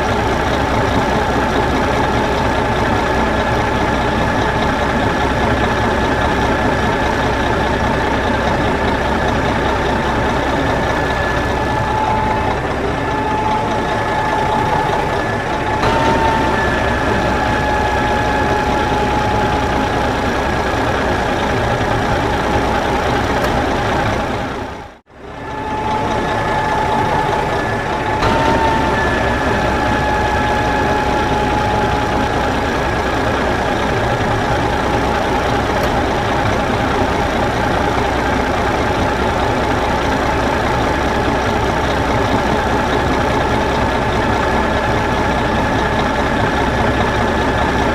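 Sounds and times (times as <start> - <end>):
steady whine: 0.0 - 47.9
tractor diesel engine running: 0.0 - 47.9.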